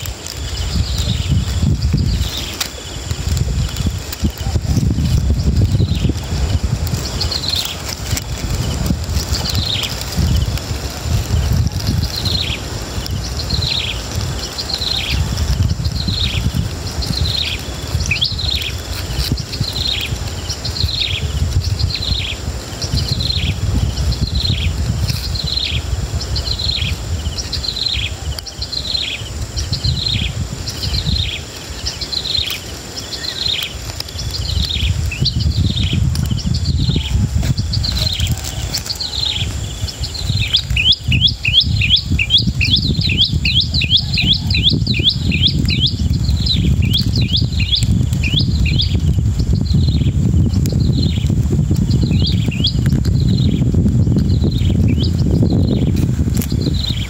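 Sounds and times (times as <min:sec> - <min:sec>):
bird chirping: 0:00.0 - 0:57.0.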